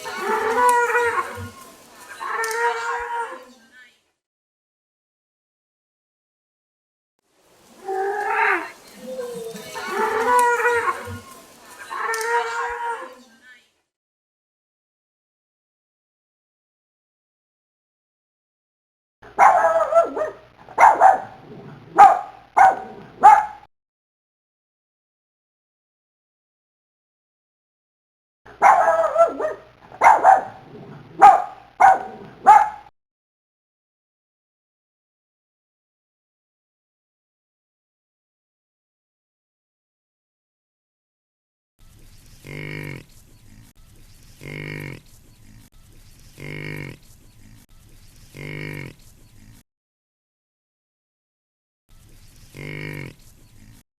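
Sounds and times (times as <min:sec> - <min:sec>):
dog barking: 0:19.3 - 0:23.7, 0:28.5 - 0:32.9
farm animal calling: 0:19.4 - 0:23.7, 0:28.6 - 0:32.9.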